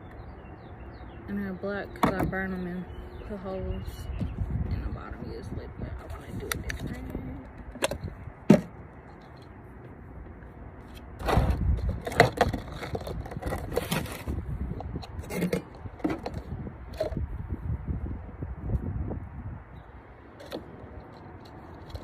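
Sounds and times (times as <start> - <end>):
scraping and crackling handling noises: 6.0 - 17.3, 20.3 - 22.0.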